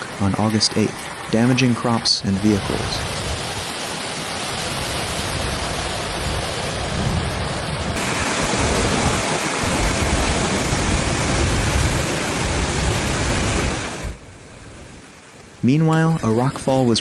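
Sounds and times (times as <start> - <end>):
heavy rain pouring: 0.0 - 17.0
wind on microphone: 4.4 - 15.0.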